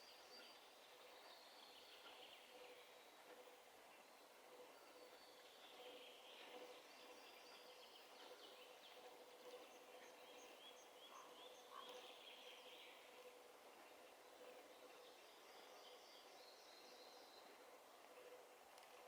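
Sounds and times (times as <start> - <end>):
birds chirping and twittering: 0.0 - 19.0
faint steady hum: 0.0 - 19.0.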